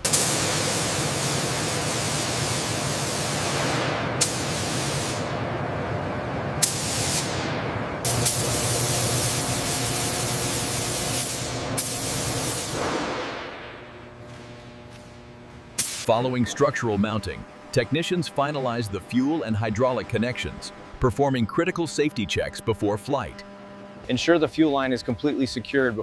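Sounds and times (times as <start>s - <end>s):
spray gun hissing: 0.0s - 5.3s, 6.6s - 7.4s, 8.0s - 13.2s, 15.8s - 16.2s.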